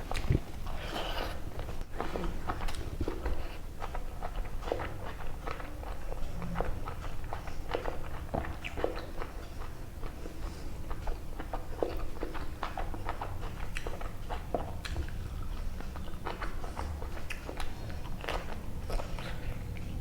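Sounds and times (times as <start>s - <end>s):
person chewing food: 0.0s - 20.0s.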